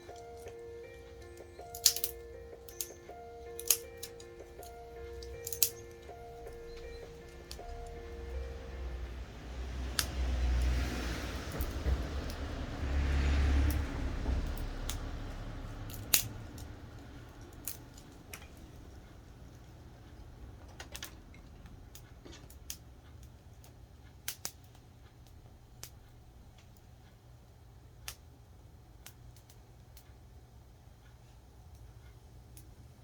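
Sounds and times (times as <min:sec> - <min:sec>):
passing vehicle rumble: 0:00.0 - 0:20.6.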